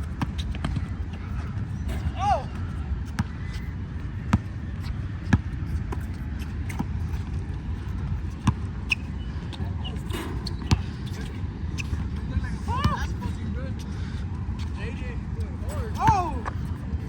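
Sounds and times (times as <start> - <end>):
basketball bouncing on court: 0.1 - 3.6, 4.2 - 4.5, 8.3 - 8.7, 10.5 - 11.0.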